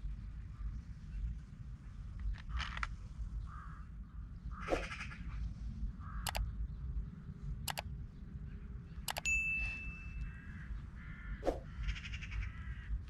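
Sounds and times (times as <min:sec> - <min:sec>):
sharp clicks: 0:07.7 - 0:07.9, 0:09.1 - 0:09.3.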